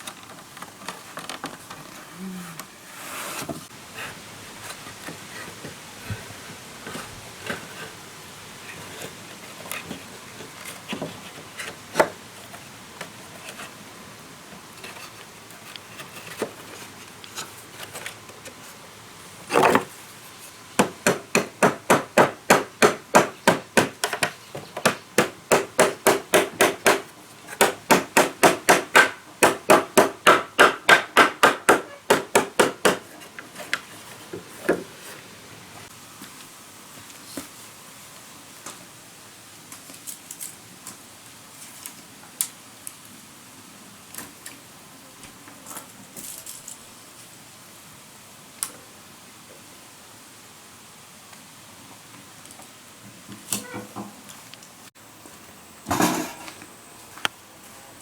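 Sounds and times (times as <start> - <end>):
hammering on wood: 20.8 - 33.2.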